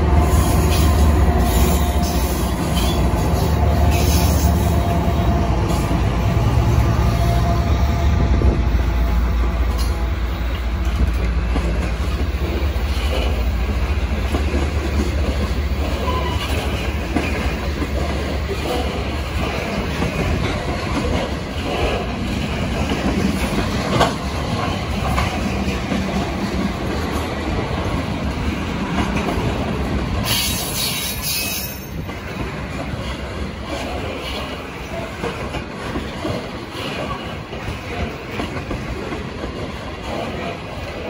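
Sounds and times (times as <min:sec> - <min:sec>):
diesel locomotive engine rumbling: 0:00.0 - 0:41.0
wheels clicking over rail joints: 0:09.7 - 0:41.0.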